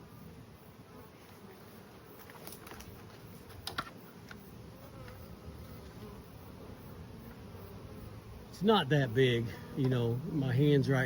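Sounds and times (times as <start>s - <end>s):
bee swarm buzzing: 0.0s - 11.0s.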